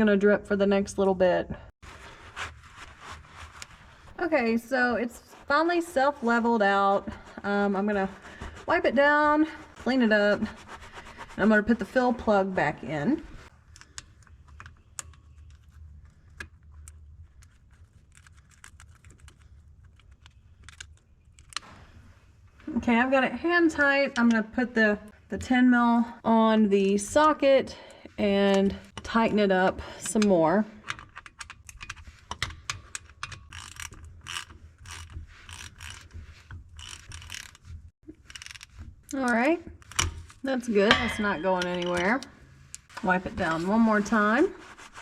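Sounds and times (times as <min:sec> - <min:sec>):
low steady hum: 0:39.1 - 0:45.0.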